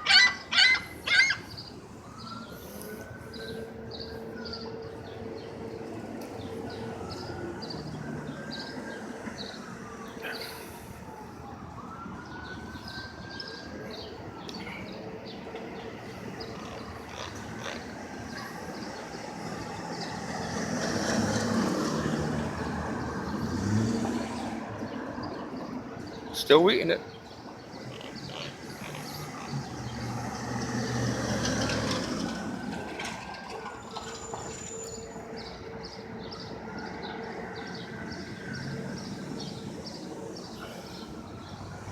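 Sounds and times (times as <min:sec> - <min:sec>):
city traffic noise: 0:00.0 - 0:41.9
distant siren wailing: 0:00.0 - 0:41.9
heavy vehicle engine passing: 0:17.6 - 0:25.0, 0:28.1 - 0:35.5.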